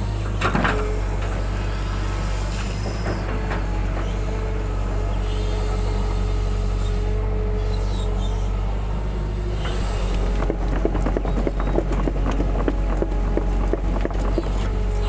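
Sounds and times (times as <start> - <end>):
diesel engine running: 0.0 - 15.0
short knocks and clatter: 9.6 - 15.0.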